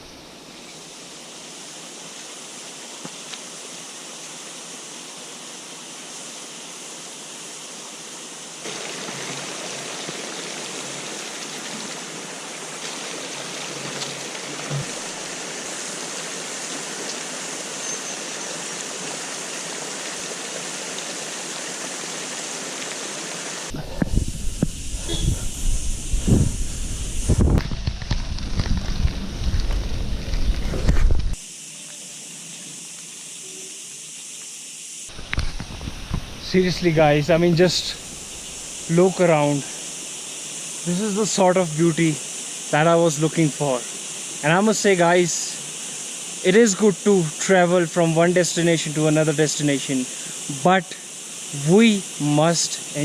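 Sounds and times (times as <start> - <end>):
stream water rushing: 0.0 - 25.3, 35.1 - 53.0
wind buffeting microphone: 23.7 - 31.4.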